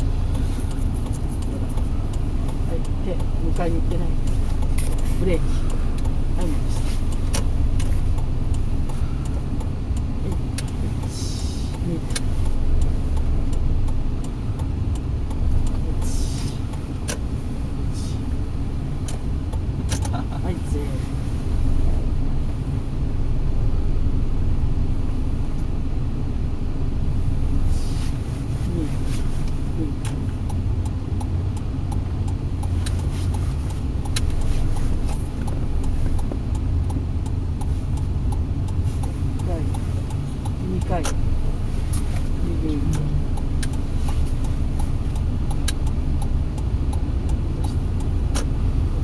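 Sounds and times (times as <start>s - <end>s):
car engine and road noise: 0.0s - 49.0s
light regular ticking: 0.0s - 49.0s
light clicks: 29.0s - 48.6s.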